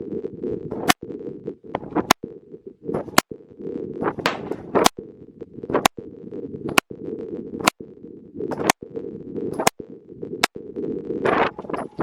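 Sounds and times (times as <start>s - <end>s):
pistol shots: 4.2s - 4.8s.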